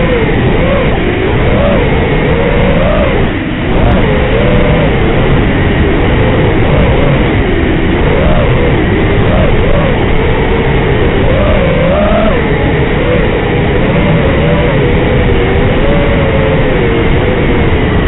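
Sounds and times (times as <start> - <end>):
quadcopter motors whining: 0.0 - 17.9.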